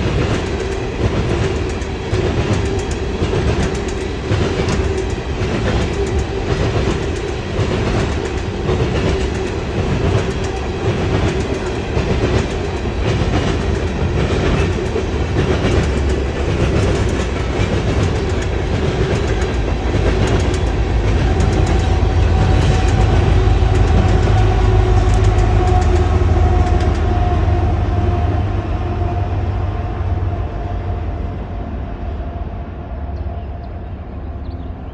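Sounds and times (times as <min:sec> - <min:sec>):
wheels clacking over rail joints: 0:00.0 - 0:27.4
freight train rumbling past: 0:00.0 - 0:34.9.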